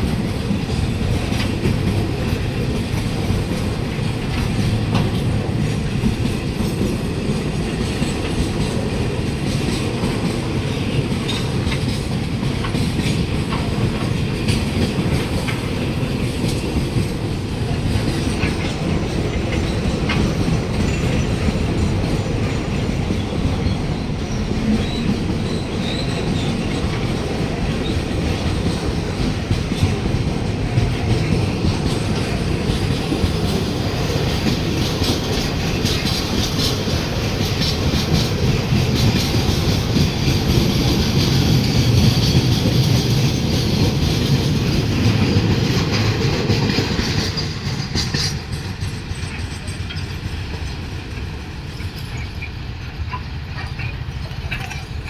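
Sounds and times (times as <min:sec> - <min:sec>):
freight train rumbling past: 0:00.0 - 0:55.0
wheels clattering over rail joints: 0:00.0 - 0:55.0.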